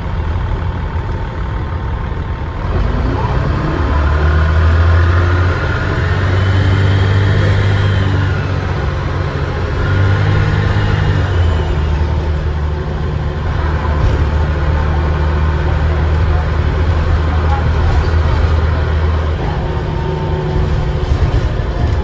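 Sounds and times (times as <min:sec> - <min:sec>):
bus diesel engine pulling: 0:00.0 - 0:22.0
turbocharger whistle: 0:09.8 - 0:12.6.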